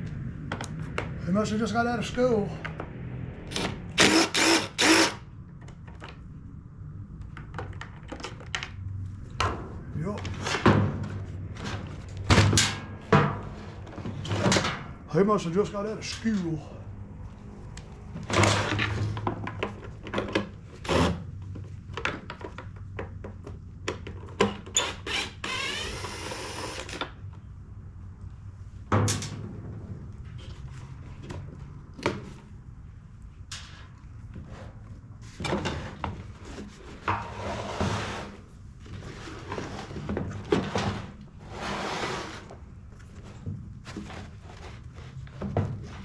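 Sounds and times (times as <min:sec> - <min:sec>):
rasping burst: 0:03.4 - 0:05.2.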